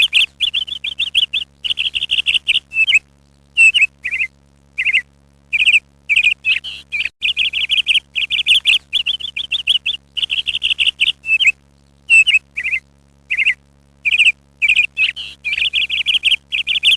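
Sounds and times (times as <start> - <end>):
parrot trilled chirps: 3.6 - 11.5, 12.1 - 16.9.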